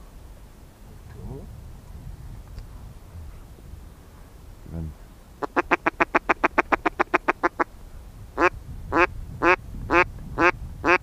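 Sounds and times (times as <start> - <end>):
duck quacking: 5.4 - 7.7, 8.4 - 11.0.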